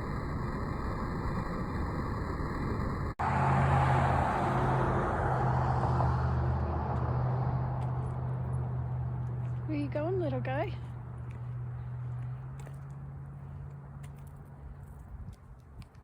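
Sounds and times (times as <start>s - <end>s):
steady rushing noise: 0.0s - 9.2s
motor vehicle drone: 0.0s - 16.0s.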